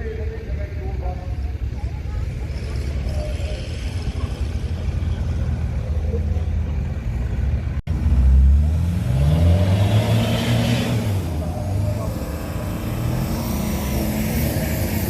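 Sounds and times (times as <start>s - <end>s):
off-road vehicle engine rumbling: 0.0s - 15.0s
engine revving up: 7.9s - 15.0s.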